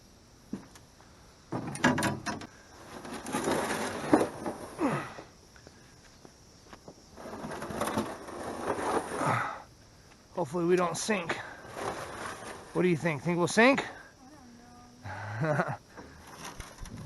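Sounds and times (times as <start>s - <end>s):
canoe hull scraping: 2.8s - 5.0s, 7.1s - 9.7s, 11.1s - 13.3s, 16.0s - 17.0s.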